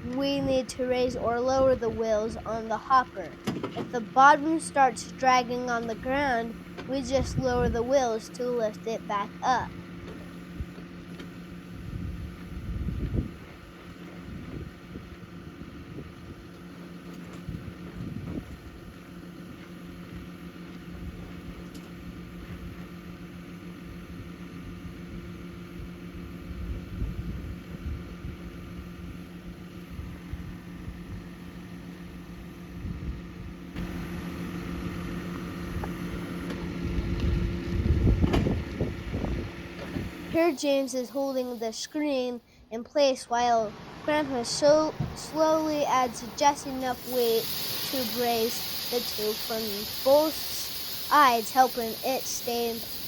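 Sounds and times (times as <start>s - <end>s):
grain auger engine humming: 0.0s - 53.0s
wind buffeting microphone: 7.0s - 8.0s, 11.7s - 16.5s, 17.4s - 19.0s, 36.8s - 40.4s
high steady tone: 40.2s - 53.0s.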